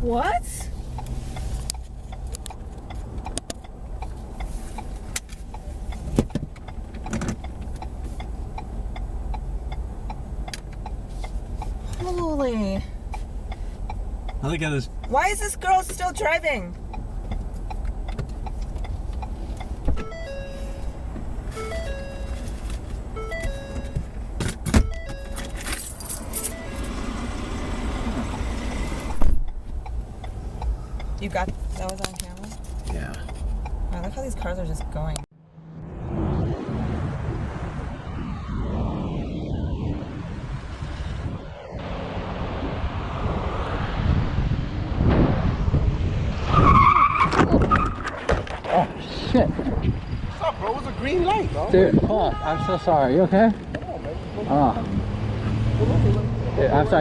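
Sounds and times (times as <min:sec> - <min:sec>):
car engine and road rumble: 0:00.0 - 0:57.0
light ticks: 0:00.9 - 0:12.0, 0:13.0 - 0:14.4, 0:16.7 - 0:19.8
electronic chime melody: 0:20.0 - 0:22.5, 0:23.2 - 0:24.0, 0:24.8 - 0:25.8, 0:26.4 - 0:27.0.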